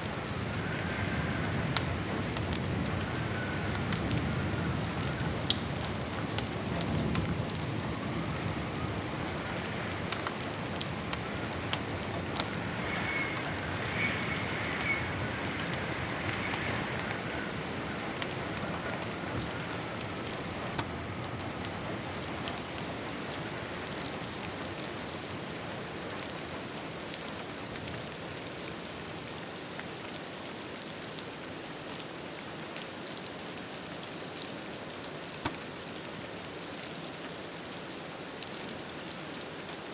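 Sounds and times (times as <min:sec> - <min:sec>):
steady rain: 0:00.0 - 0:39.9
wood fire crackling: 0:00.1 - 0:24.6.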